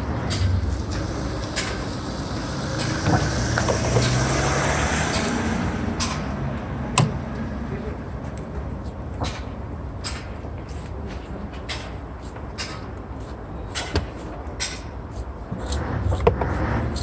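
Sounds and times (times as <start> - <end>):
vehicle engine running: 0.0 - 9.2
sharp clicks and knocks: 0.2 - 7.5, 8.3 - 17.0.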